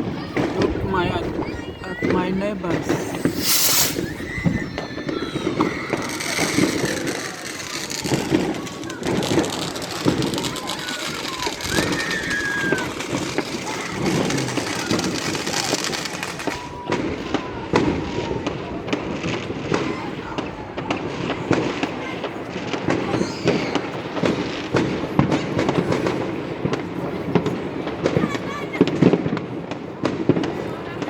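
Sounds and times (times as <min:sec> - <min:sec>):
fireworks cracks and bangs: 0:00.0 - 0:31.0
background voices: 0:00.6 - 0:04.2.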